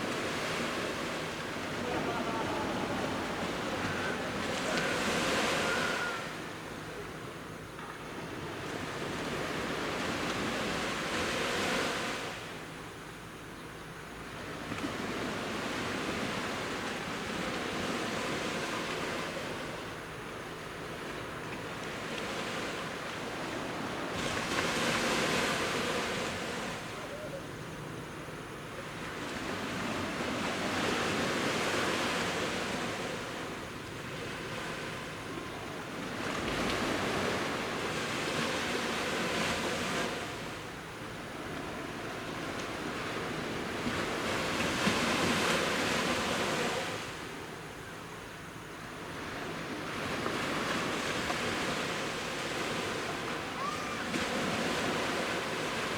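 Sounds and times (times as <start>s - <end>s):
sea waves breaking on beach: 0.0s - 6.8s, 21.6s - 27.0s, 28.9s - 47.4s, 49.0s - 55.9s.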